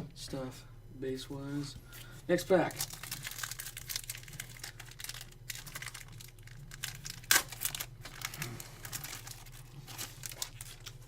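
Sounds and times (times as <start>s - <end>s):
steady low hum: 0.0s - 11.0s
wrapper tearing and crinkling: 2.6s - 11.0s.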